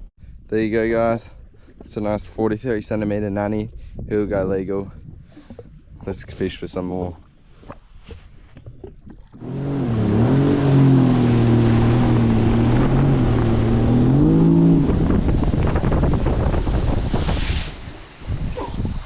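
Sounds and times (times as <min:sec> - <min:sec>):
wind noise on microphone: 0:00.0 - 0:19.0
engine running loud: 0:09.4 - 0:16.9.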